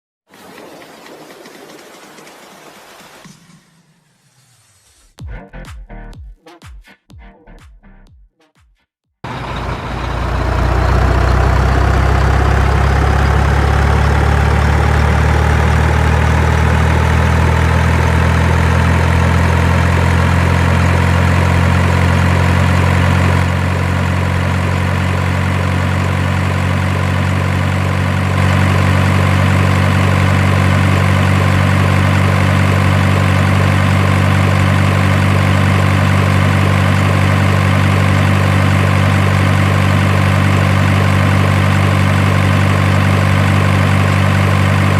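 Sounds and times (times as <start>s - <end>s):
truck engine idling: 9.2s - 44.9s.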